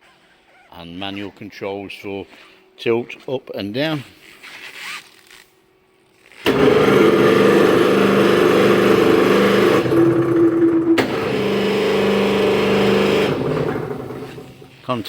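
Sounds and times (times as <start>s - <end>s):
electric motor humming: 6.4s - 15.0s.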